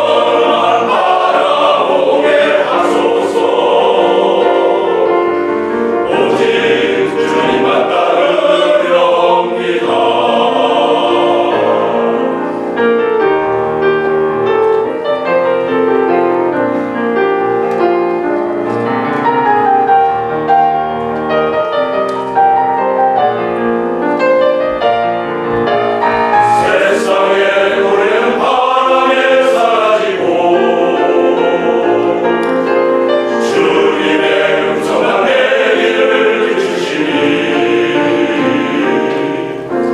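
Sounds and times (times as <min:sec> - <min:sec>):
vocal ensemble singing sacred song: 0:00.0 - 0:13.0, 0:26.0 - 0:39.9.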